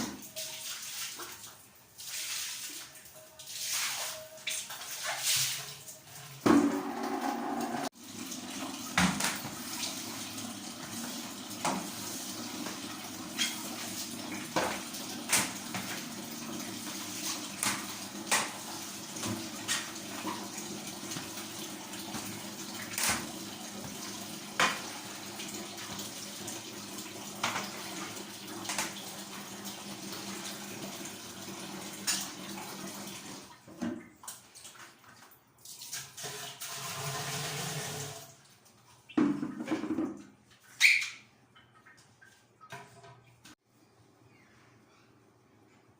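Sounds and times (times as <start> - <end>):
water running from a tap: 0.1 - 33.7, 35.7 - 38.4.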